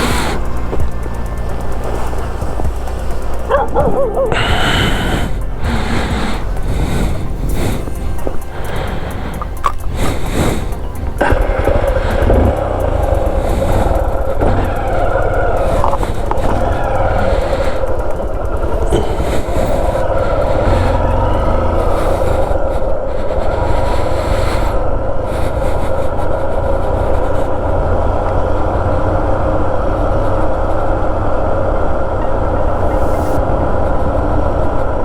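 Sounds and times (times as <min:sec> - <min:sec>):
motorcycle engine running: 0:00.0 - 0:24.1
wind rumble on microphone: 0:00.0 - 0:35.0.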